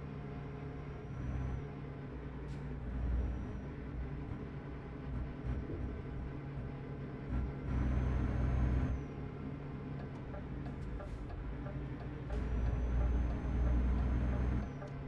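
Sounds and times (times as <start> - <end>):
truck engine humming: 0.0 - 15.0
high engine whine: 2.8 - 15.0.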